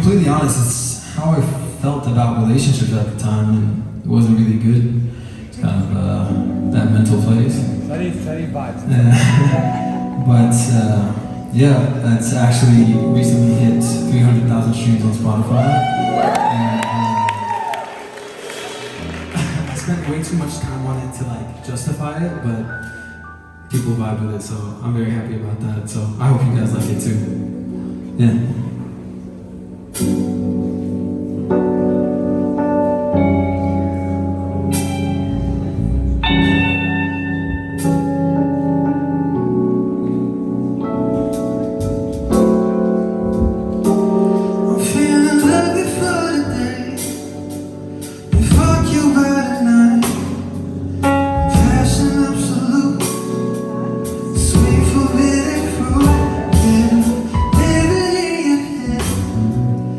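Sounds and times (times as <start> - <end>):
sustained instrumental chords: 6.2 - 24.2, 26.8 - 59.9
person singing: 15.5 - 17.7, 44.6 - 47.2, 48.4 - 50.5, 51.4 - 53.5, 54.4 - 59.6.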